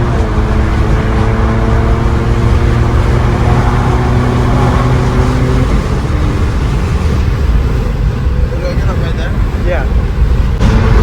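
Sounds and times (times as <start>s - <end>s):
loud exhaust drone: 9.4s - 11.0s.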